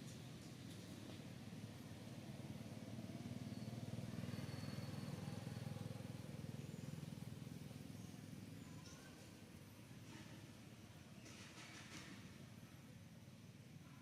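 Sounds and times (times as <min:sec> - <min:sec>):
vehicle engine rumble passing: 0:00.0 - 0:12.7.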